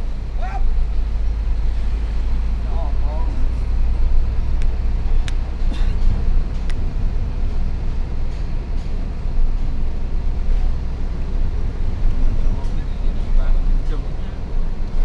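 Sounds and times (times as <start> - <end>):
diesel truck engine rumbling: 0.0 - 15.0.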